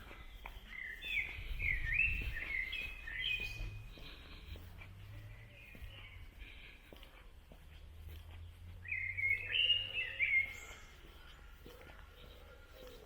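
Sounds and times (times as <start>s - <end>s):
faint footsteps: 0.0s - 13.0s
songbird singing: 0.0s - 13.0s.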